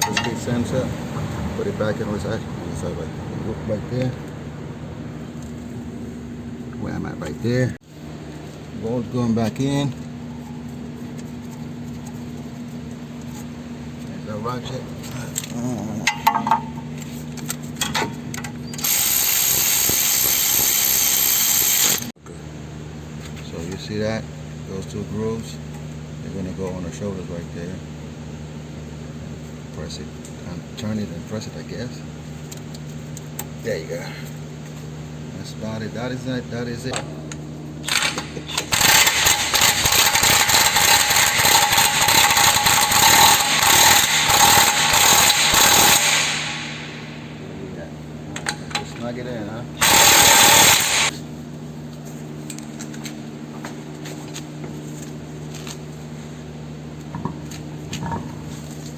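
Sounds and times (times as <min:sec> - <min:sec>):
power ratchet hissing: 0:18.6 - 0:22.2, 0:37.8 - 0:47.3, 0:49.8 - 0:51.2.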